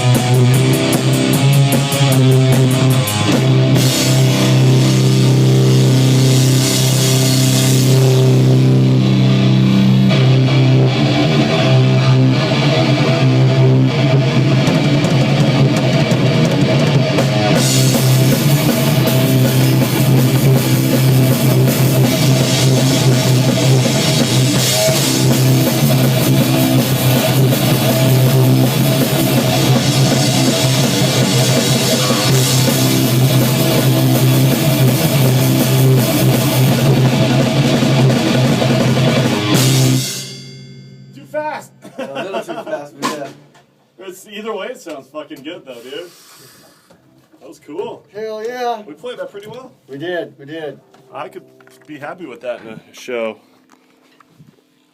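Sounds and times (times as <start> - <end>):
rock band playing live: 0.0 - 41.0
cymbals: 39.3 - 41.4.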